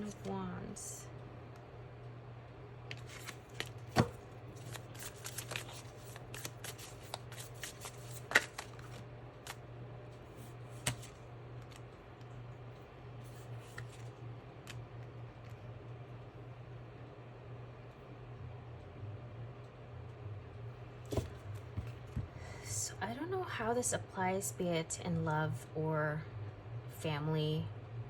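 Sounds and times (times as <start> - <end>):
steady low hum: 0.0 - 28.0
cards being shuffled: 2.9 - 9.6, 10.4 - 11.8, 13.3 - 14.8.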